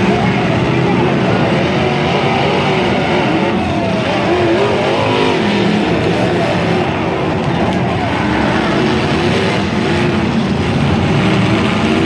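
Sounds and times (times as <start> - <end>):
truck engine running under load: 3.4 - 12.0.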